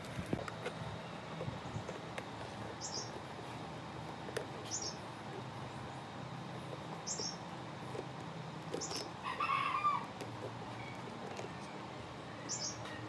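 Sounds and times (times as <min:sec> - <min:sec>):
small bird chirping: 0:02.7 - 0:03.2, 0:04.6 - 0:07.5, 0:08.7 - 0:09.1, 0:10.7 - 0:13.0.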